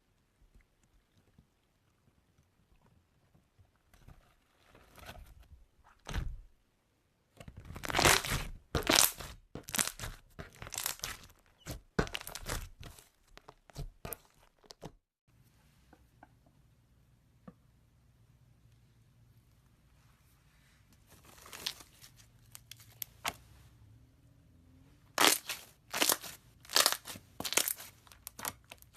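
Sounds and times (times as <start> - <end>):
slime squishing and popping: 7.6 - 14.8, 25.2 - 28.9.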